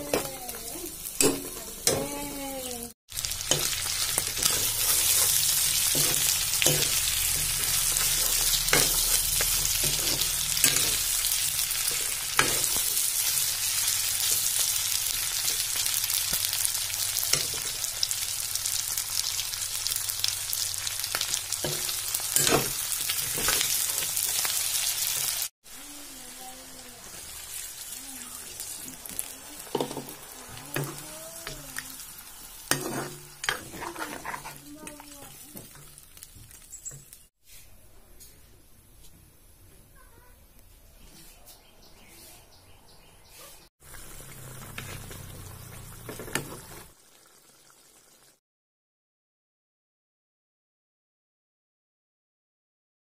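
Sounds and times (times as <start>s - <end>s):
chicken sizzling in hot oil: 0.1s - 37.3s, 43.8s - 48.4s
metal ladle scraping a pan: 3.5s - 11.2s, 32.7s - 35.1s.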